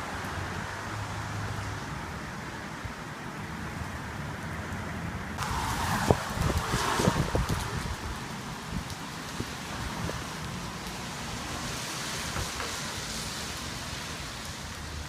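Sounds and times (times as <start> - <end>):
wind blowing across microphone: 1.9 - 13.1.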